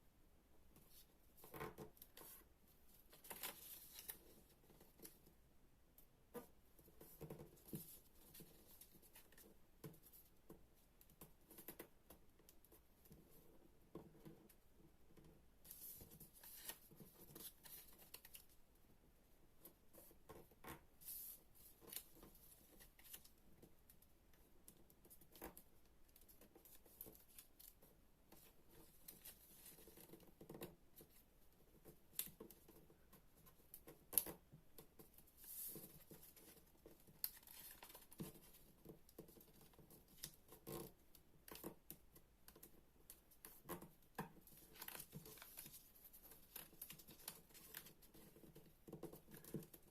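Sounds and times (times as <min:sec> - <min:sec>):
paper rustling and creasing: 0:03.0 - 0:05.2, 0:15.7 - 0:18.6, 0:35.2 - 0:40.9, 0:44.4 - 0:49.9.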